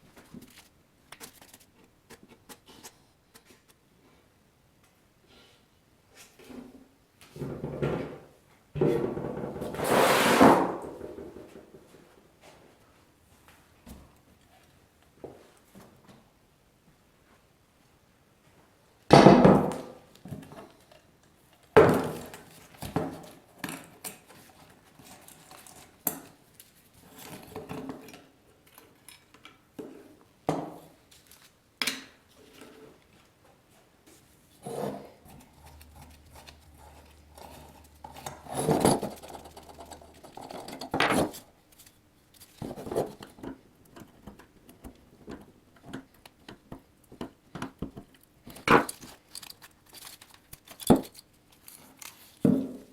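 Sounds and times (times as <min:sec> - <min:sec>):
metal tools clinking and scraping: 0:35.5 - 0:43.2, 0:48.5 - 0:52.4.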